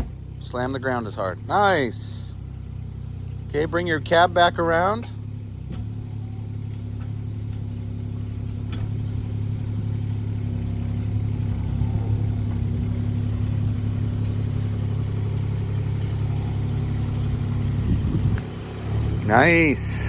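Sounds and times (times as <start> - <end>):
excavator engine under hydraulic load: 5.5 - 20.0.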